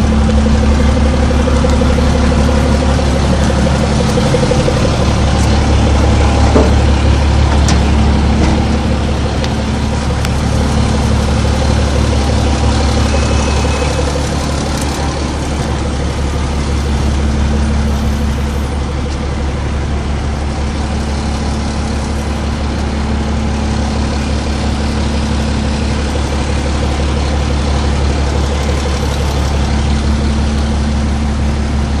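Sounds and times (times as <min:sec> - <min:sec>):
diesel engine idling: 0:00.0 - 0:32.0.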